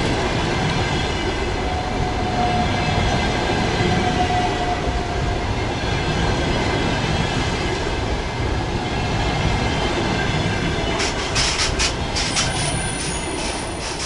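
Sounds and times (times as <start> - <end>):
train coaches rumbling: 0.0 - 14.0
short sharp air hisses: 11.0 - 14.0.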